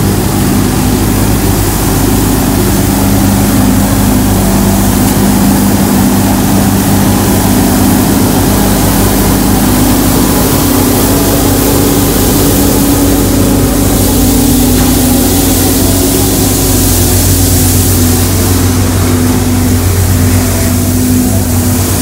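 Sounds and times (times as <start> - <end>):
hiss: 0.0 - 22.0
vehicle engine idling: 0.0 - 22.0.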